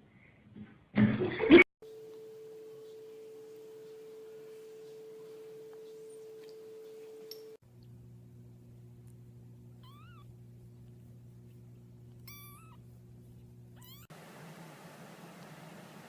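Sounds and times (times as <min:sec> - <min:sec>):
cat meowing: 0:09.8 - 0:10.3, 0:12.2 - 0:12.8, 0:13.8 - 0:14.1.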